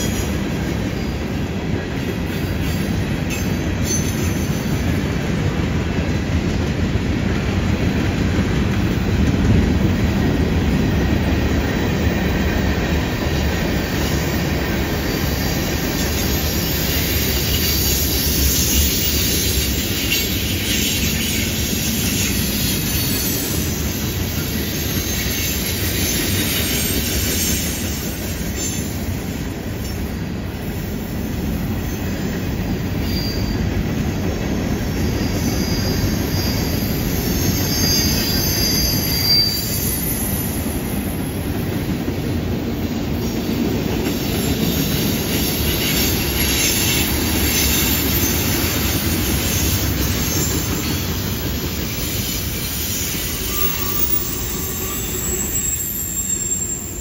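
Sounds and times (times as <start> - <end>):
freight train wheels clattering on rail: 0.0 - 57.0
wheel flange squeal: 33.0 - 33.7, 34.9 - 41.1, 44.2 - 57.0.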